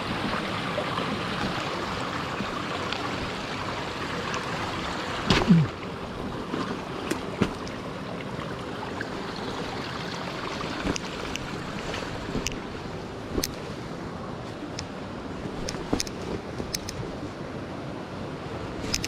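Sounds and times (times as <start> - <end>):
stream rushing over rocks: 0.0 - 13.6.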